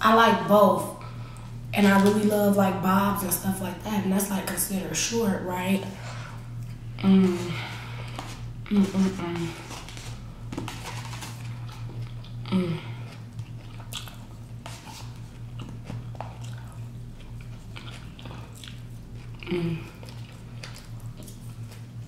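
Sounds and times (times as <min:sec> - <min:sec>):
low electrical hum: 0:00.0 - 0:22.0
short hum-like voice sound: 0:00.0 - 0:22.0
chewing food: 0:08.1 - 0:22.0.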